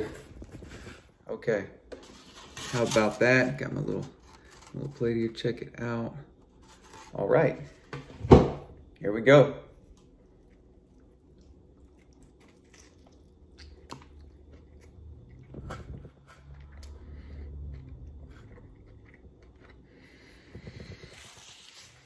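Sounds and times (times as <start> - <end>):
person chewing pizza: 9.7 - 22.0.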